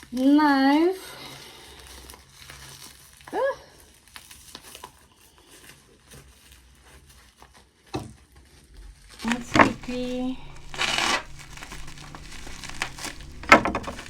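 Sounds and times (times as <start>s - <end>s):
plastic packaging crinkling: 9.2s - 14.0s.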